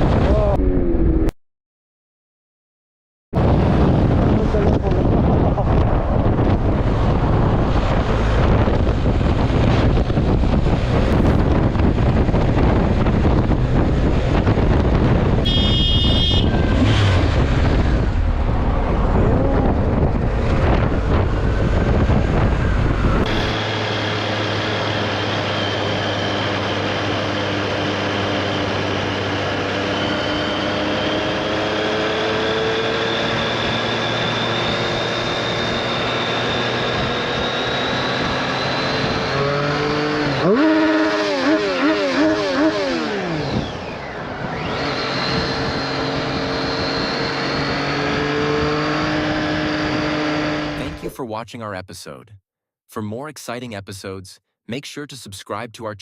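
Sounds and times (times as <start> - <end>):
wind buffeting microphone: 3.4 - 23.6
motorcycle engine: 4.0 - 51.0
gliding whine: 15.5 - 40.6.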